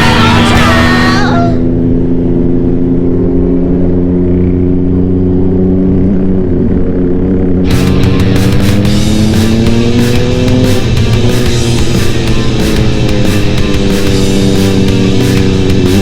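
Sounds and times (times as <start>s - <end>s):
rock music: 0.0s - 1.7s, 7.6s - 16.0s
motorcycle engine running: 0.0s - 16.0s.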